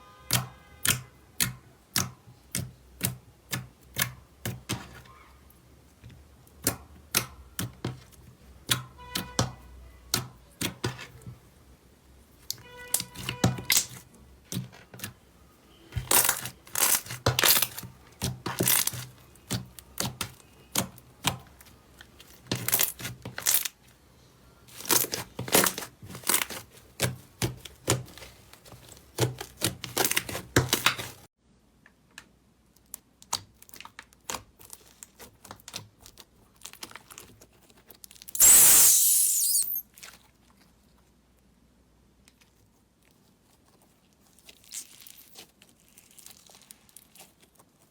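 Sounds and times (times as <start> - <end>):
short loud hiss: 38.4 - 39.8.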